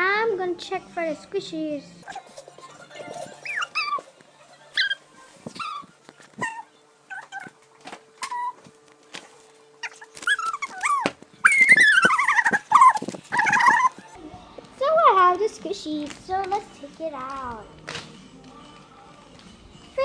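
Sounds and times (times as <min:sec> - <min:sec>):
dog whining and yipping: 0:03.2 - 0:04.1, 0:04.8 - 0:07.6, 0:08.2 - 0:08.7, 0:09.8 - 0:14.1.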